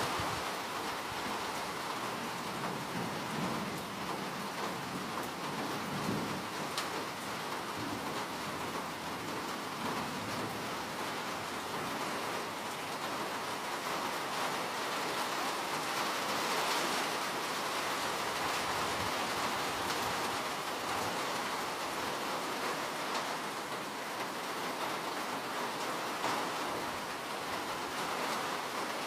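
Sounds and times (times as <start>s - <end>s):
steady rainfall: 0.0s - 29.0s.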